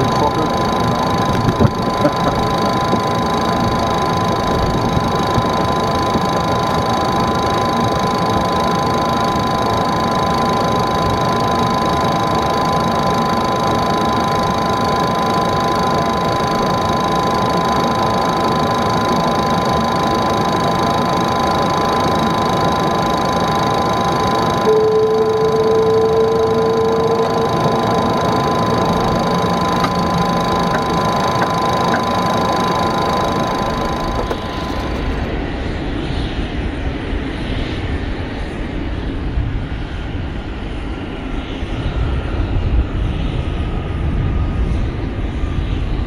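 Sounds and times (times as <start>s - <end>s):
aircraft cabin whirring rush: 0.0s - 35.5s
high steady whine tones: 0.0s - 35.7s.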